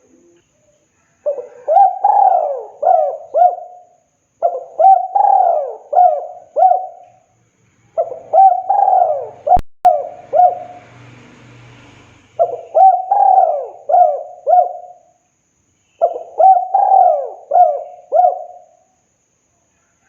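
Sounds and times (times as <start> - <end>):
dove cooing: 1.2 - 7.2, 8.0 - 10.9, 12.4 - 15.2, 16.0 - 18.8.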